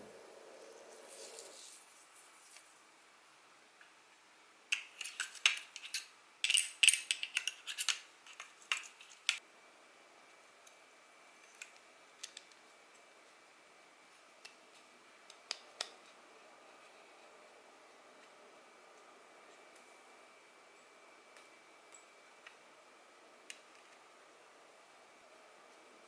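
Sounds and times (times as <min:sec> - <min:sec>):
small metal parts clicking: 0:04.7 - 0:09.4.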